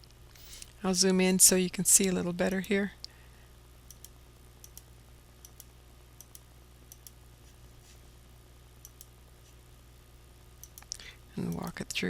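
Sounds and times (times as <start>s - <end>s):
faint steady hum: 0.0s - 12.0s
computer mouse clicking: 3.9s - 7.2s, 8.8s - 9.1s, 10.6s - 11.7s.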